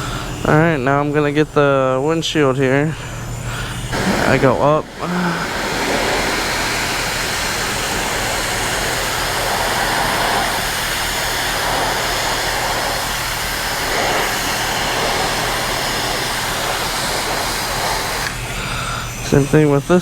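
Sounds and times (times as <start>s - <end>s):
low hum: 2.9s - 17.3s
high-pressure water spray hissing: 3.0s - 19.4s.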